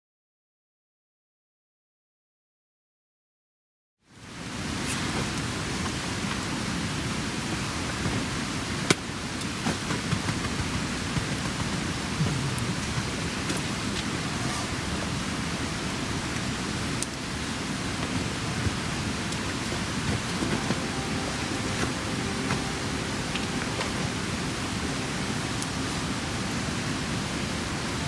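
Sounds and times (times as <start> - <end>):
campfire flames hissing: 4.4 - 28.0
fire crackling and popping: 16.0 - 28.0.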